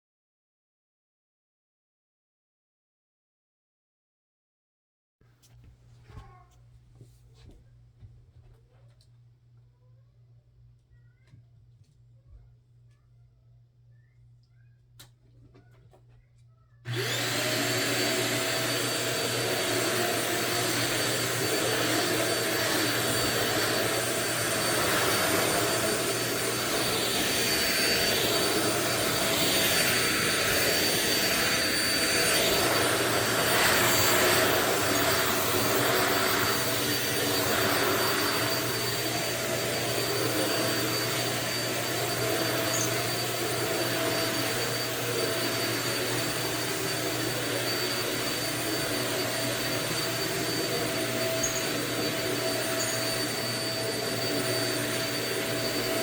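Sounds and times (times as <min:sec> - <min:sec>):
stick vacuum motor whining: 0:16.9 - 0:56.0.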